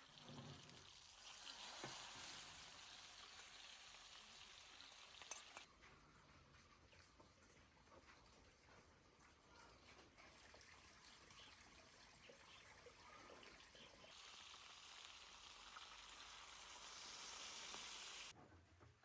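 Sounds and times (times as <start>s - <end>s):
food sizzling in a pan: 0.0s - 5.7s, 12.4s - 18.4s.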